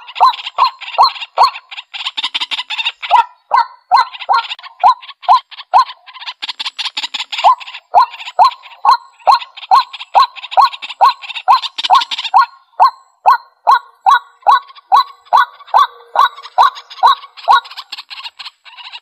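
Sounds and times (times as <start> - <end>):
bird rising kwak calls: 0.0 - 19.0
bird rattling chatter: 4.0 - 8.4.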